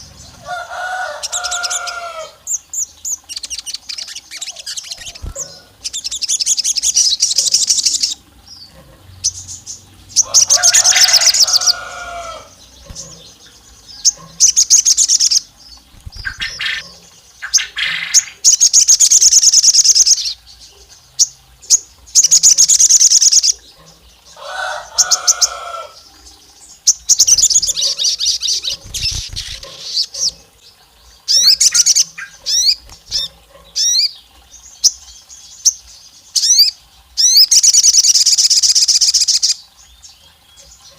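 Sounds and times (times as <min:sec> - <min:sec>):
bird rattling trills: 0:00.1 - 0:20.3, 0:26.9 - 0:30.4, 0:31.3 - 0:34.2
bird sharp chirps: 0:03.3 - 0:08.2.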